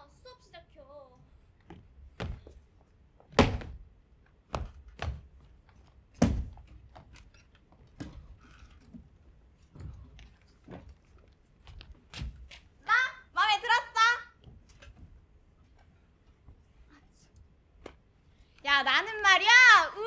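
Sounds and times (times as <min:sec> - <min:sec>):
knocks and thumps on stage: 0:03.3 - 0:03.9, 0:06.2 - 0:06.7.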